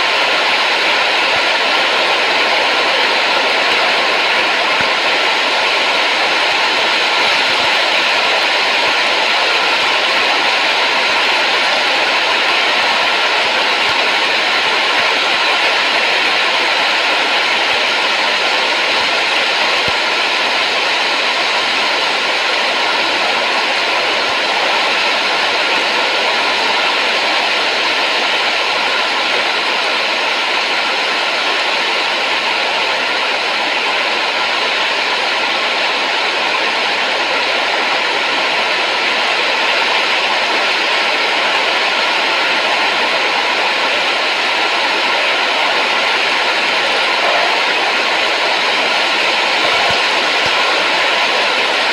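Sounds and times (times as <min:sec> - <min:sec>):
steady rushing hiss: 0:43.6 - 0:51.9.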